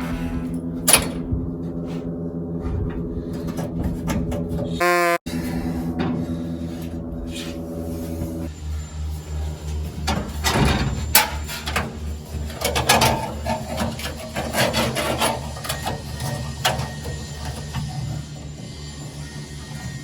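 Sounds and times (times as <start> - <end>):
steady low hum: 0.0 - 14.5.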